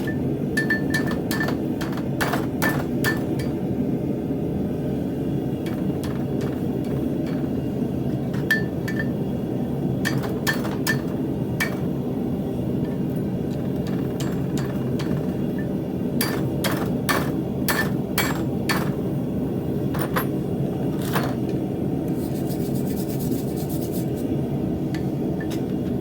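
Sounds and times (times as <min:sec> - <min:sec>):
hammer striking steel on anvil: 0:00.0 - 0:03.7, 0:05.6 - 0:09.2, 0:10.0 - 0:12.0, 0:12.8 - 0:19.0.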